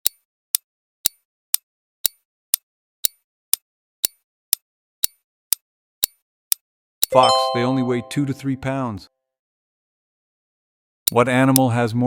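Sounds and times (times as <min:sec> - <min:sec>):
countdown timer ticking: 0:07.1 - 0:08.8.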